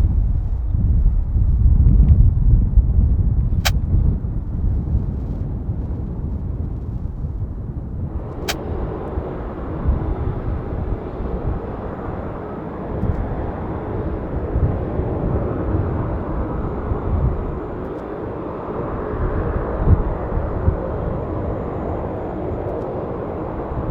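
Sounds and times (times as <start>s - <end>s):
click: 17.8s - 18.1s.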